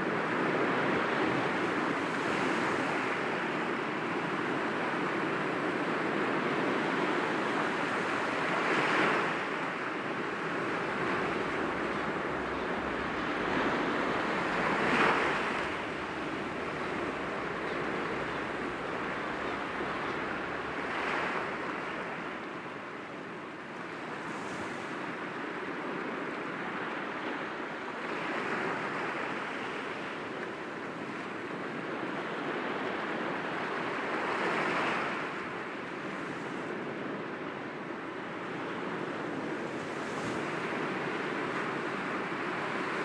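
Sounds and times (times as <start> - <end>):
sea waves breaking against rocks: 0.1 - 25.3.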